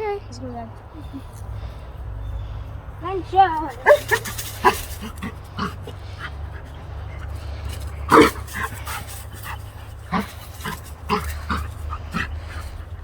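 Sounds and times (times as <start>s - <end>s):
puppy yipping: 3.7s - 12.7s.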